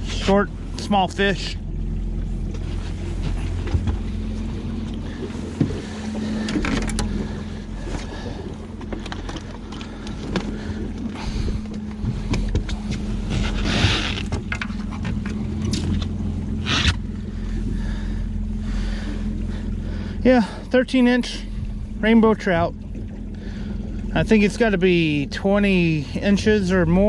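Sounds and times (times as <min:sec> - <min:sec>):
boat motor humming: 0:00.0 - 0:27.0
knocks on boat: 0:02.5 - 0:04.1, 0:11.7 - 0:15.9.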